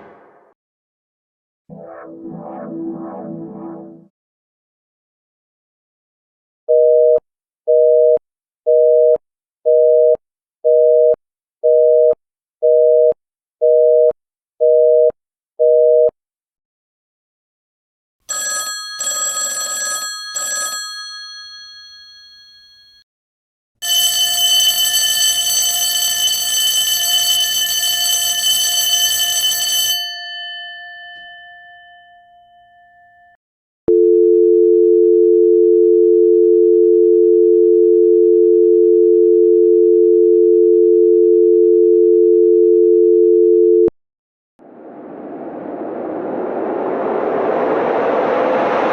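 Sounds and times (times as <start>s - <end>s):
steady dial tone: 6.7s - 16.2s, 33.9s - 43.9s
metallic telephone bell ringing: 18.3s - 23.0s, 23.8s - 33.3s.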